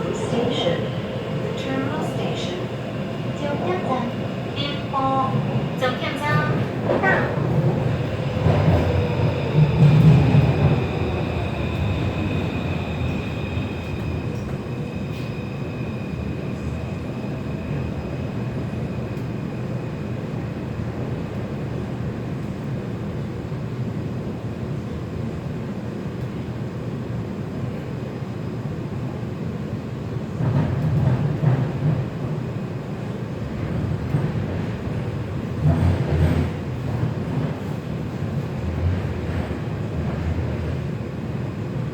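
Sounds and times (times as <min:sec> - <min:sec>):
train wheels rumbling on rail: 0:00.0 - 0:41.9.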